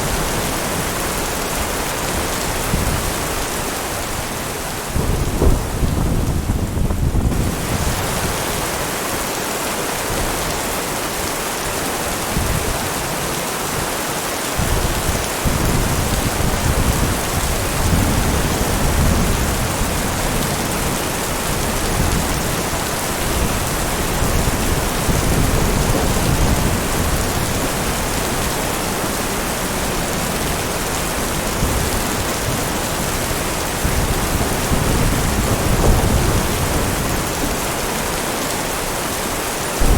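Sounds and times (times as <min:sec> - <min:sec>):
heavy rain falling: 0:00.0 - 0:39.9
thunder rumbling: 0:04.9 - 0:08.5, 0:14.6 - 0:37.8.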